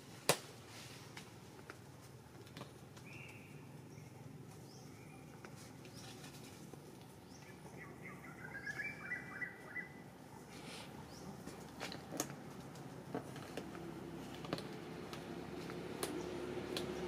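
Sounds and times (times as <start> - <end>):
outdoor background hiss: 0.0 - 17.0
faint bird chirps: 7.3 - 10.0
short high bird calls: 7.7 - 10.0.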